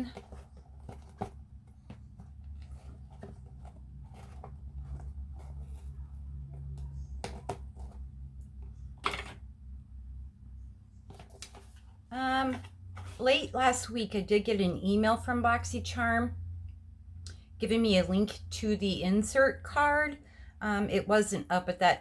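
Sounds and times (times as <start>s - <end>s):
cardboard box being handled: 0.0s - 8.2s
low steady hum: 0.0s - 22.0s.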